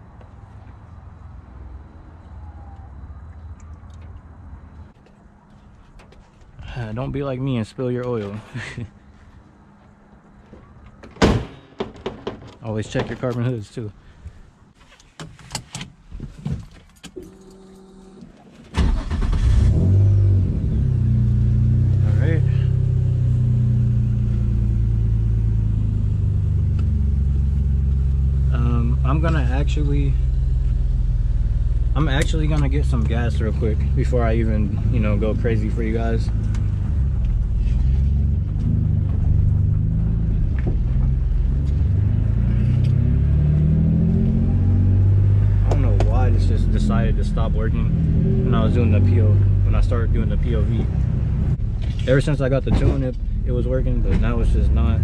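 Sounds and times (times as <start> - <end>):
clicks and knocks: 10.9 - 13.4
car engine starting and idling: 17.0 - 55.0.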